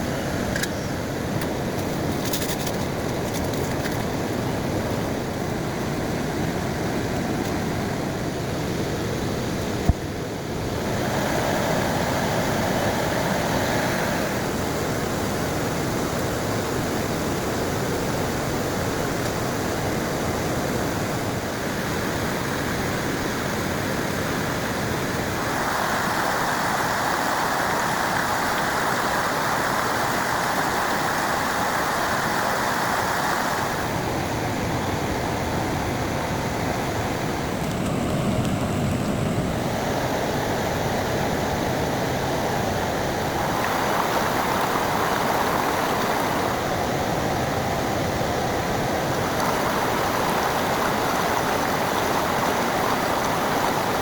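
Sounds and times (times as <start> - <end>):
heavy rain falling: 42.2 - 54.0.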